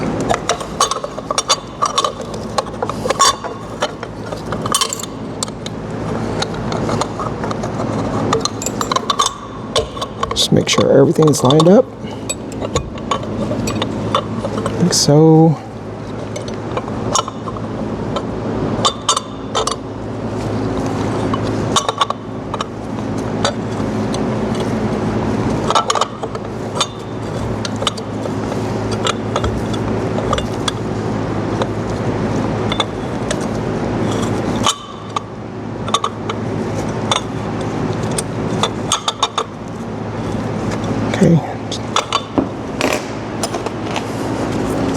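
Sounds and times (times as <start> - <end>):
low machine hum: 0.0 - 44.9
metallic clinks of bolts: 4.6 - 5.5.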